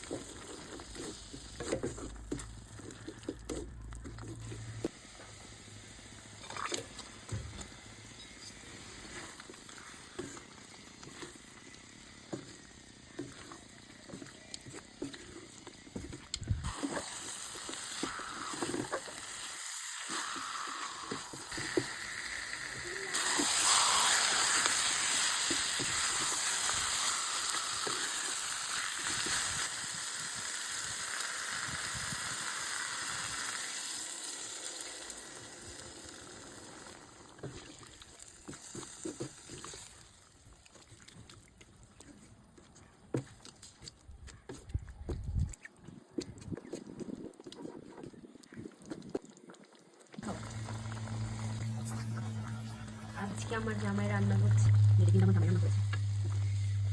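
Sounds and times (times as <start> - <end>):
spoon stirring in a pan: 9.0 - 21.9
food sizzling in a pan: 16.6 - 40.0, 50.2 - 56.9.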